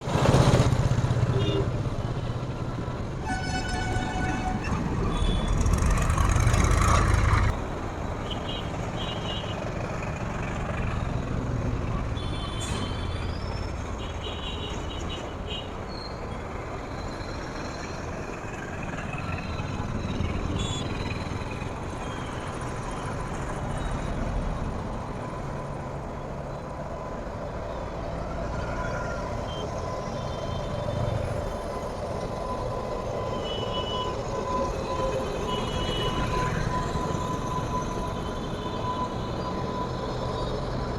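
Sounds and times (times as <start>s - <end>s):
heavy low train rumble: 0.0s - 8.2s
train horn toot: 3.2s - 5.7s.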